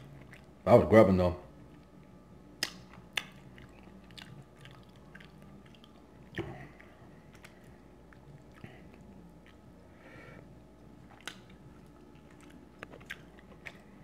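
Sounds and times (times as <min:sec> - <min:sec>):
person chewing wetly: 0:00.0 - 0:00.6, 0:01.6 - 0:14.0
mouth clicks and smacks: 0:02.6 - 0:09.7, 0:10.8 - 0:14.0.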